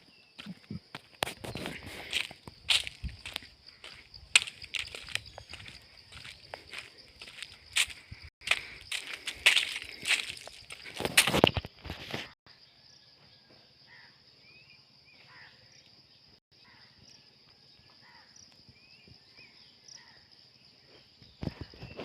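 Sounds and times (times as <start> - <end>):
high-pitched insect trill: 0.0 - 22.0
loud rustling and crunching: 1.2 - 12.4.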